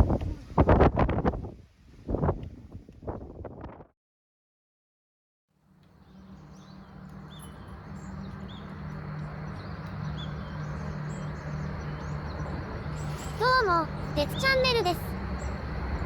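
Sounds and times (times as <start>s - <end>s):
small birds chirping: 5.8s - 16.0s
steady low hum: 5.8s - 16.0s.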